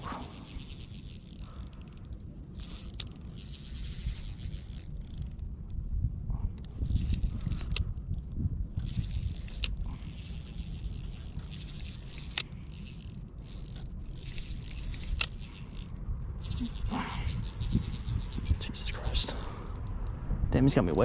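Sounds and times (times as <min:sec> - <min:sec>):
low rumble of handling: 0:00.0 - 0:21.0.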